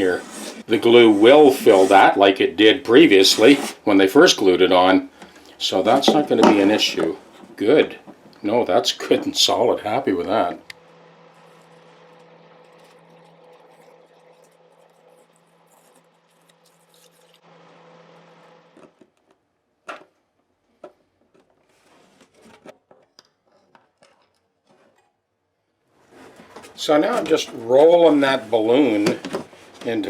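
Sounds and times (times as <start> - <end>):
steady low hum: 5.0 - 18.8.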